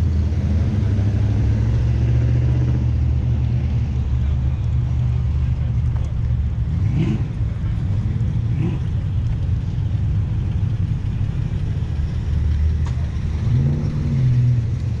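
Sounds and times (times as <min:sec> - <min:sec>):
engine revving: 0:00.0 - 0:05.7, 0:06.6 - 0:09.1, 0:11.8 - 0:15.0
car engines rumbling: 0:00.0 - 0:15.0.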